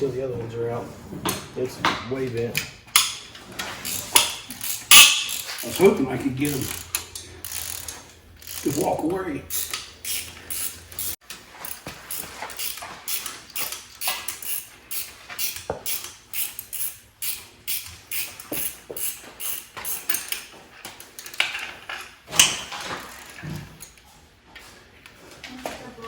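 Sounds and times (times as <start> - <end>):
ratchet wrench clicking: 3.0 - 3.2, 3.8 - 5.8, 6.5 - 8.9, 9.5 - 20.5
sharp metal click: 3.9 - 5.5.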